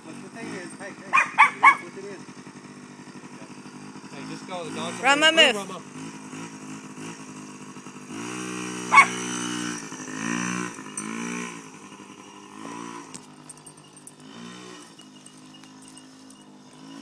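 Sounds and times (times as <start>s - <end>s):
dirt bike engine revving: 0.0s - 17.0s
dog barking: 1.1s - 1.9s, 8.9s - 9.3s.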